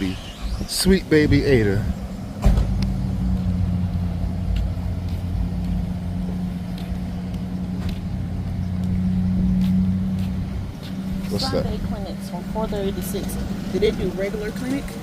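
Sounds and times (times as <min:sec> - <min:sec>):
car engine idling: 0:00.0 - 0:15.0
thump: 0:02.4 - 0:02.8.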